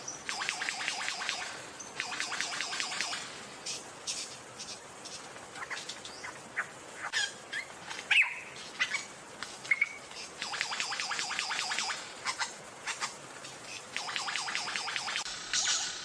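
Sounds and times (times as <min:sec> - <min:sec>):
bird chirping and whistling: 0:07.1 - 0:12.0, 0:14.0 - 0:16.0.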